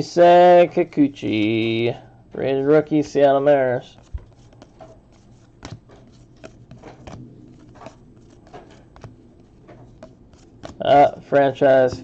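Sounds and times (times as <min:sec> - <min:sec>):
cards clicking and rustling: 0:00.6 - 0:12.0.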